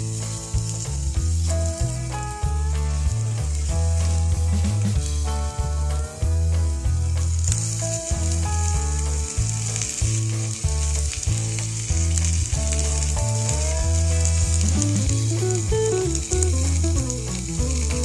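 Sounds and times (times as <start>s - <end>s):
music with stepping bass line: 0.0s - 18.0s
meat sizzling over fire: 6.4s - 18.0s.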